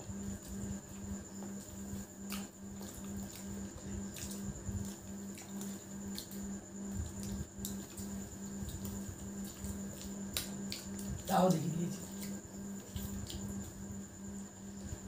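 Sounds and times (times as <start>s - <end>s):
low pulsing hum: 0.0s - 15.0s
wet mouth eating sounds: 12.0s - 13.6s.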